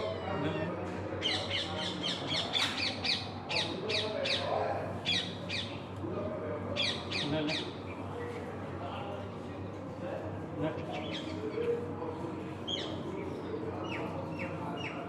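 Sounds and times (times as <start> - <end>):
birds squawking: 0.0 - 4.5.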